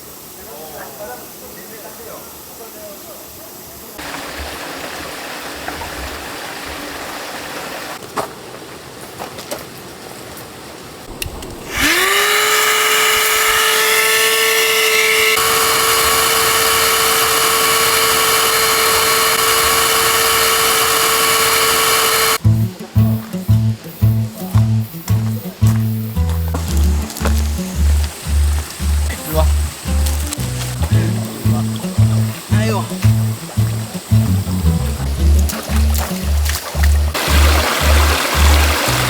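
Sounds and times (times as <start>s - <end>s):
steady hiss: 0.0s - 9.0s, 9.7s - 39.0s
electric motor whining: 11.4s - 22.4s, 25.6s - 39.0s.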